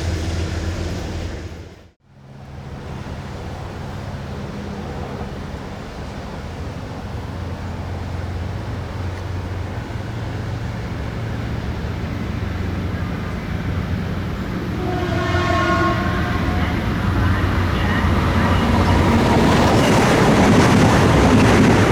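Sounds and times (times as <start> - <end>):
train rumbling: 0.0 - 21.9
train horn: 12.8 - 20.3.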